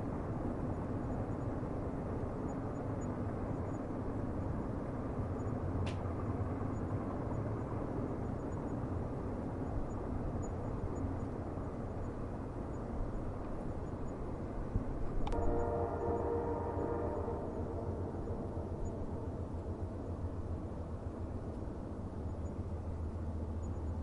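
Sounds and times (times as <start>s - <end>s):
distant train rumbling: 0.0s - 24.0s.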